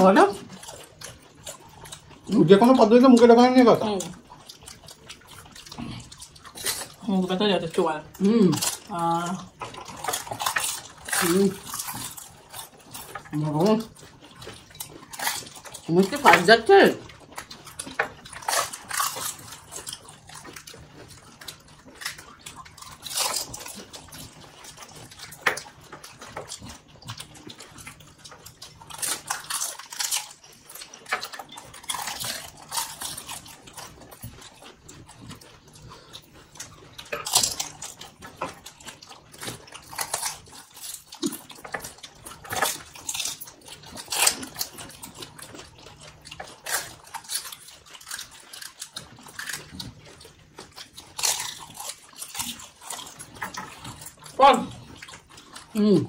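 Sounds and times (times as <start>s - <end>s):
water slurped: 0.0s - 56.0s
crisp shells crunching: 14.6s - 26.9s, 28.4s - 35.1s, 36.5s - 55.7s.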